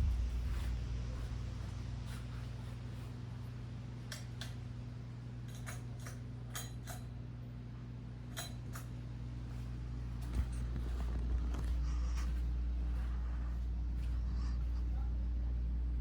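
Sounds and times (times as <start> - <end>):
ceiling fan humming: 0.0 - 16.0.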